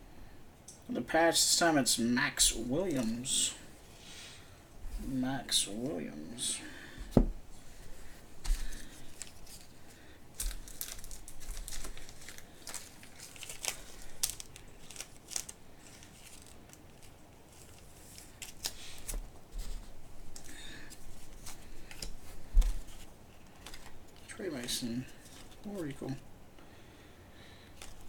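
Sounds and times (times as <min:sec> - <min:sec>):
card wrappers tearing and crinkling: 0:08.4 - 0:26.2, 0:27.7 - 0:28.0.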